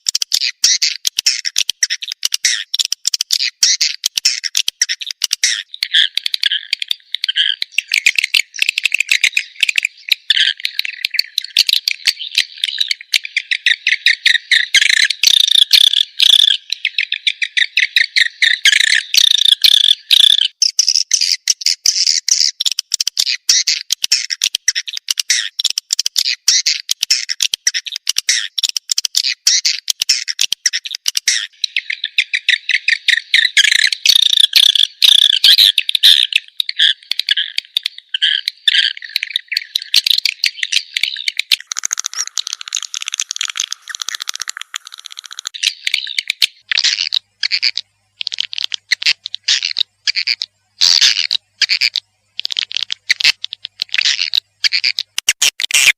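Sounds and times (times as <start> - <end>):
swiftlets chirping and twittering: 26.3 - 55.0.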